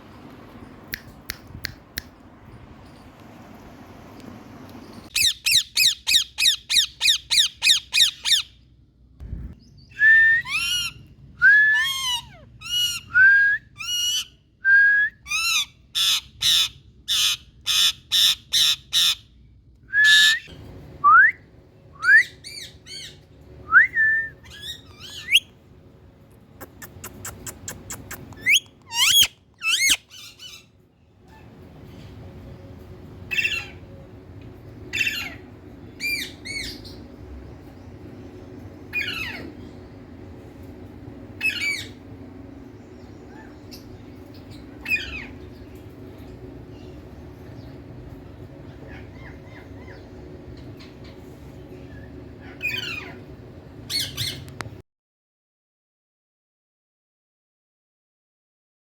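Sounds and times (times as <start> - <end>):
parakeet squawking: 5.1 - 8.5, 26.7 - 30.7, 52.4 - 53.2
rising whistled calls: 20.0 - 21.4.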